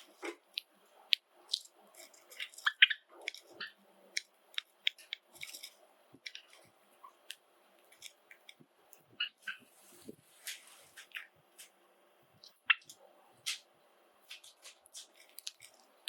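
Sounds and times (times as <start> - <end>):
sparrows chirping and clicking: 0.0 - 9.7, 12.4 - 13.6.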